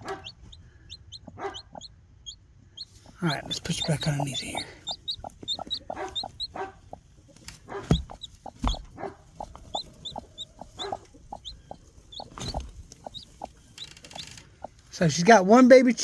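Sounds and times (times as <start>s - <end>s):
hen clucking: 0.0s - 1.9s, 2.8s - 15.2s
chick peeping: 0.0s - 15.0s
loud thumps: 7.8s - 9.8s, 12.2s - 13.2s.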